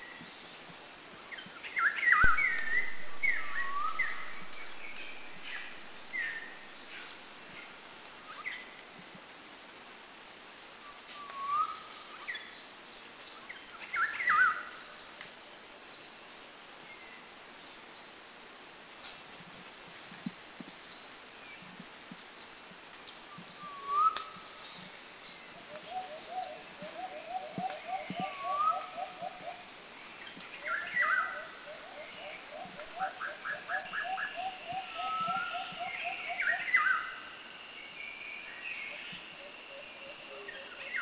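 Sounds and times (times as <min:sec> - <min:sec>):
insect hiss: 0:00.0 - 0:41.0
birds chirping and whistling: 0:02.0 - 0:06.5, 0:25.8 - 0:29.3, 0:30.6 - 0:37.0
low croaking notes: 0:02.3 - 0:06.1.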